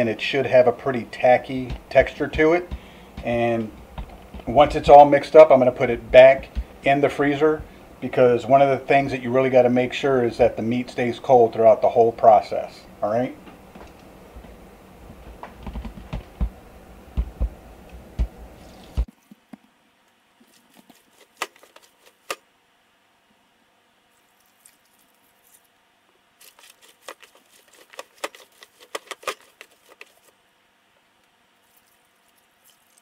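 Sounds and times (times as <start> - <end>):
room hum: 0.0 - 33.0
low thumps: 1.6 - 8.0, 15.1 - 19.1.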